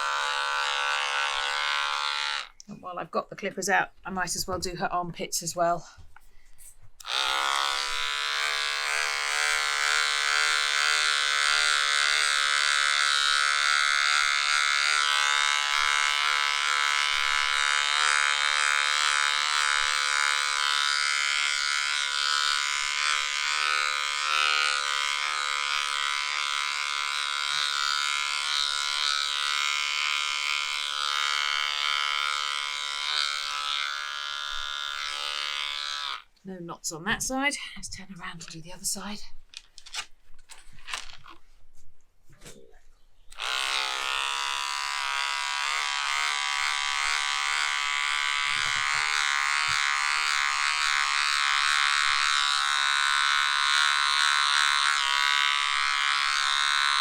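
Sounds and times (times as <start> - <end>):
electric clippers buzzing: 0.0 - 2.7, 7.0 - 36.3, 43.3 - 57.0.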